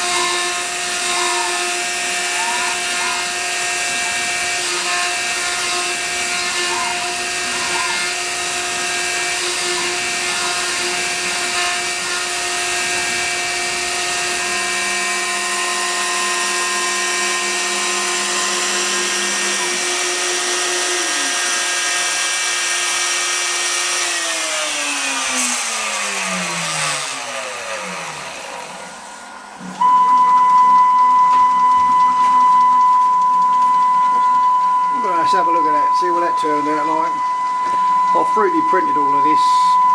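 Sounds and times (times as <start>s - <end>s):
router spindle motor whining: 0.0s - 39.9s
loud steady tone: 29.6s - 39.9s.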